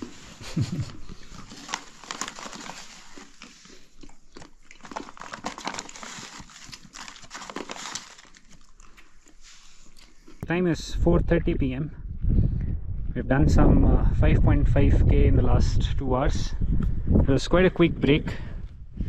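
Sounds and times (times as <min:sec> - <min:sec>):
chickpeas being chewed: 0:00.0 - 0:10.4.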